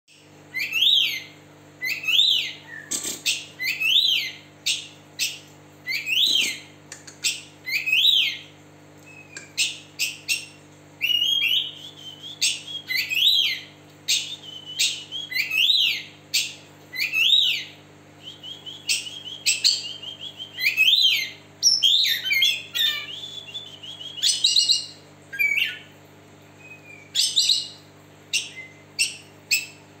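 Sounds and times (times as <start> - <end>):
bird whistling song: 0.5 - 25.9, 26.6 - 29.8
sharp bird clicks: 6.1 - 7.5, 9.0 - 10.5.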